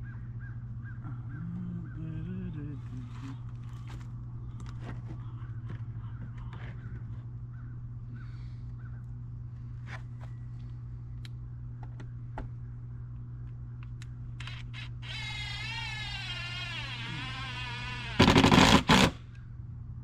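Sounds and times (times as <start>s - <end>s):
birds calling: 0.0s - 9.4s
steady low hum: 0.0s - 20.0s.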